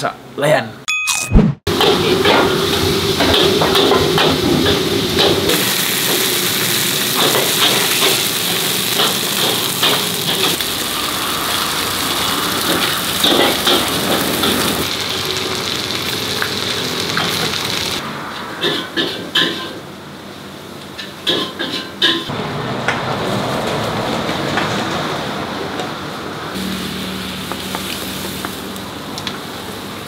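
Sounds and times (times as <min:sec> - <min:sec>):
food sizzling in a wok: 0:01.8 - 0:18.0, 0:26.6 - 0:30.0.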